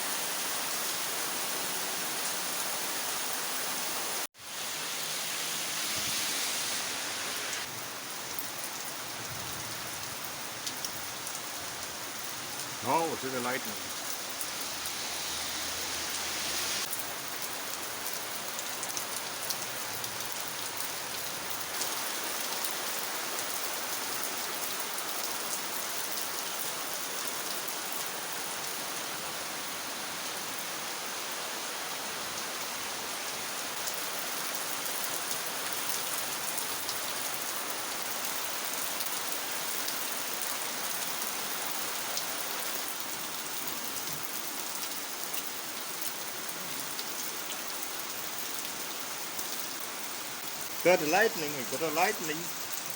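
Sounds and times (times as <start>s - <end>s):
heavy rain pouring: 0.0s - 52.9s.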